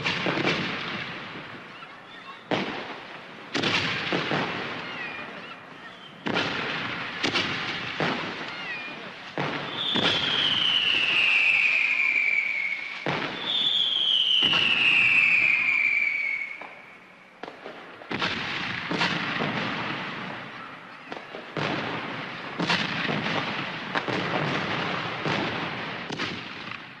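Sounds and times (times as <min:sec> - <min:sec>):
fireworks bangs with crackle: 0:00.0 - 0:27.0
falling firework whistle: 0:08.2 - 0:17.6.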